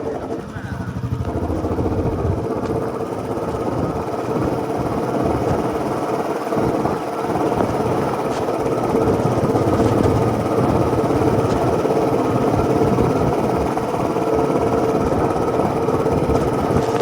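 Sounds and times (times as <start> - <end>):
single-cylinder motorcycle engine running: 0.0 - 17.0.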